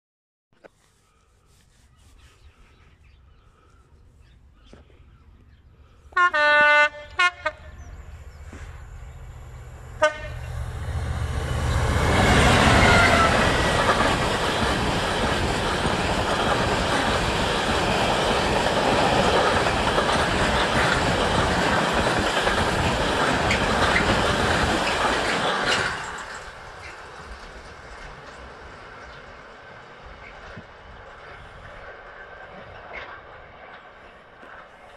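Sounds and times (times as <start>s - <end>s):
locomotive passing: 5.6s - 34.9s
train horn blasts: 6.1s - 8.0s, 10.0s - 10.6s, 12.5s - 13.6s.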